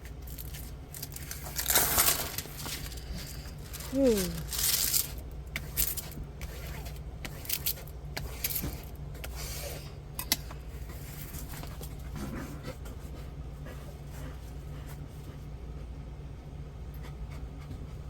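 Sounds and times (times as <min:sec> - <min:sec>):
low steady hum: 0:00.0 - 0:18.0
plastic packaging rustling: 0:00.2 - 0:05.2.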